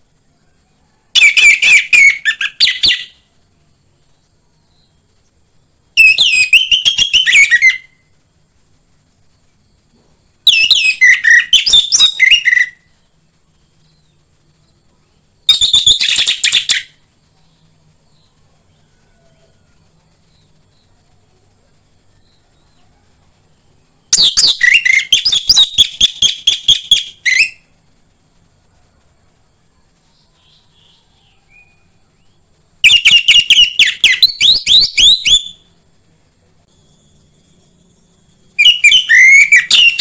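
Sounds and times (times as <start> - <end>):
faint high hiss: 0.0 - 40.0
thrush singing whistled notes: 1.0 - 3.3, 4.6 - 8.2, 9.4 - 20.9, 23.6 - 27.8, 30.1 - 35.7, 36.7 - 40.0.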